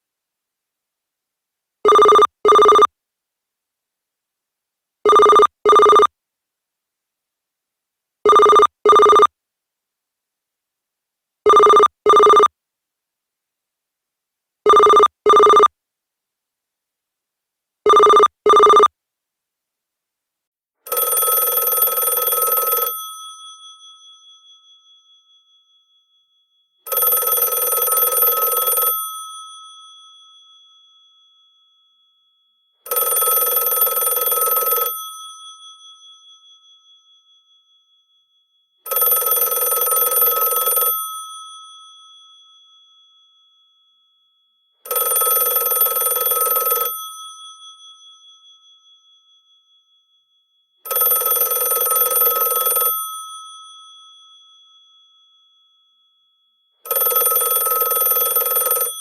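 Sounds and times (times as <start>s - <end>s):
telephone bell ringing: 1.9s - 2.9s, 5.1s - 6.1s, 8.3s - 9.3s, 11.5s - 12.5s, 14.7s - 15.7s, 17.9s - 18.9s, 20.9s - 49.9s, 50.6s - 55.5s, 56.7s - 59.0s.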